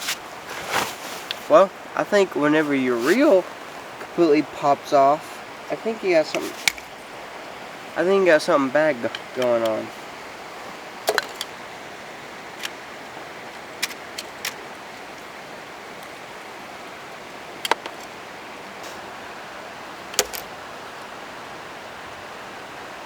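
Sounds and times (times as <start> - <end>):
creek water rushing: 0.0 - 23.0
sharp clicks and knocks: 17.6 - 18.1, 20.1 - 20.5.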